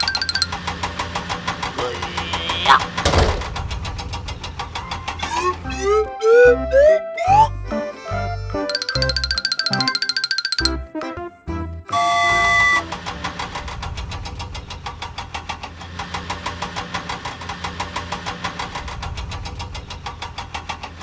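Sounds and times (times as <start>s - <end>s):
cartoon toy engine chugging: 0.0s - 10.9s, 11.9s - 21.0s
horn-like tone: 11.9s - 13.0s.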